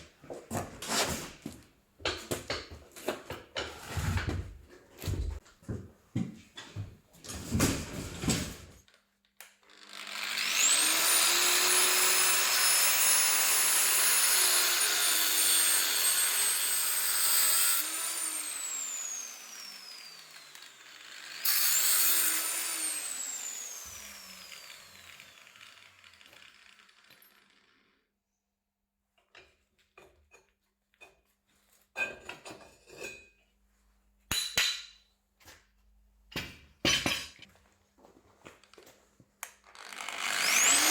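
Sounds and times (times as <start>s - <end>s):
power tool whining: 9.7s - 28.0s, 39.6s - 40.9s.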